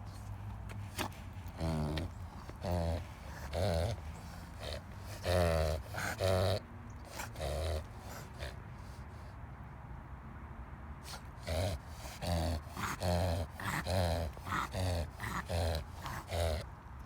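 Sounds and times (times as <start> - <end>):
dog reverse sneezing: 0.8 - 6.2.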